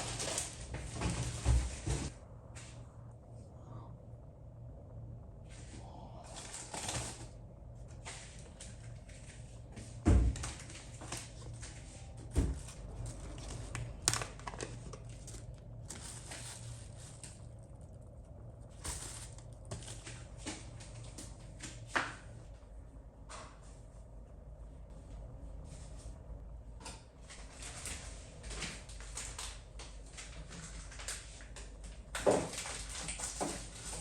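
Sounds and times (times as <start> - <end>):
light crinkling: 10.4 - 21.9.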